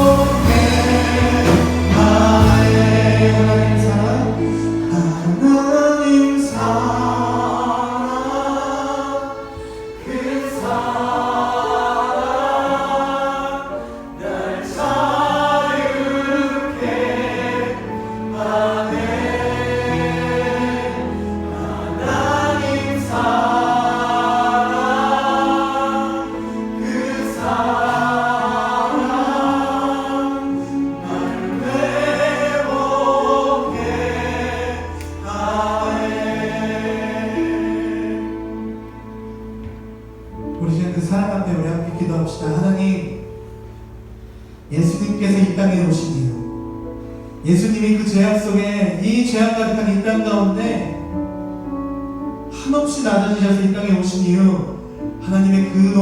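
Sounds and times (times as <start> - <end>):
group singing worship song: 0.0 - 39.1
instrumental backing: 0.0 - 48.0.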